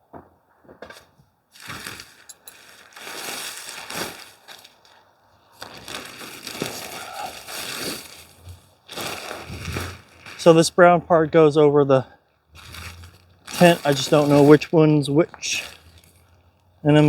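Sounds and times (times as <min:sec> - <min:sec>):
tent fabric rustling: 0:01.5 - 0:11.0, 0:12.3 - 0:17.0.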